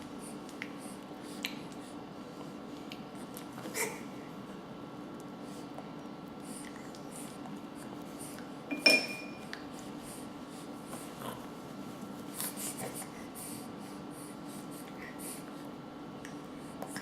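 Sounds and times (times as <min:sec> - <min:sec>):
spoon clinking against dish: 0:08.7 - 0:09.5.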